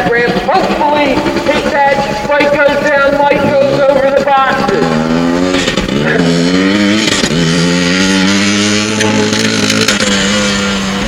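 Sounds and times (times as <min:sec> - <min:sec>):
motorcycle accelerating: 0:00.0 - 0:11.0.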